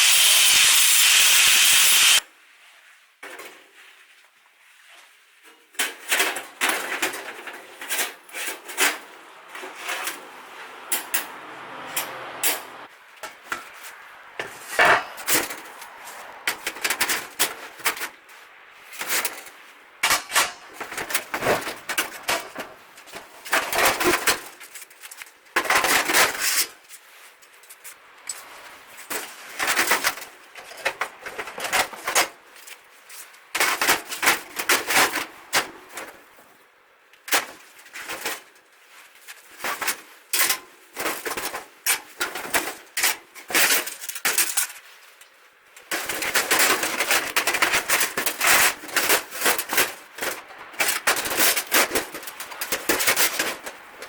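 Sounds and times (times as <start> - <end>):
welding arc crackling: 0.0 - 2.2.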